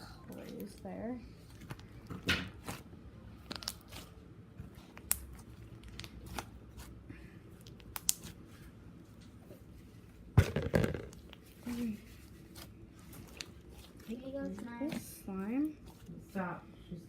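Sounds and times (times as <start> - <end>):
slime squished by hand: 1.6 - 8.5.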